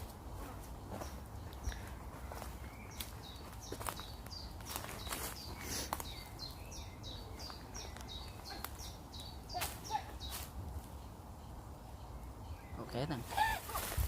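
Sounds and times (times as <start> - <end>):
crunching footsteps: 0.0 - 6.5
small bird singing: 0.0 - 14.0.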